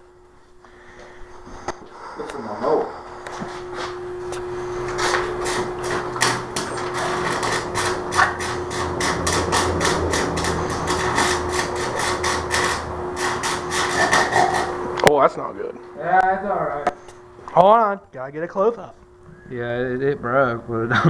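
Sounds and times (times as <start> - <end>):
steady hum: 0.0 - 21.0
arc welder crackling: 3.2 - 15.4.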